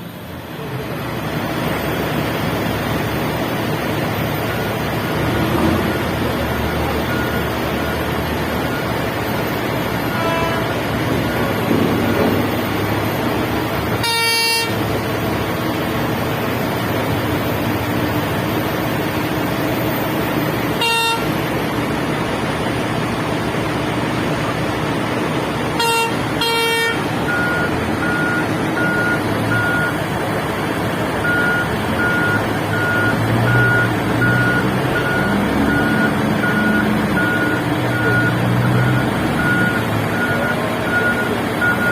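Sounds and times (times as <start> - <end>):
heavy diesel engines running: 0.0 - 41.9
reversing alarm beeping: 4.4 - 14.8, 25.8 - 30.0, 31.2 - 41.9
horn blasts: 10.1 - 12.3, 13.9 - 14.9, 20.8 - 21.4, 25.8 - 27.1.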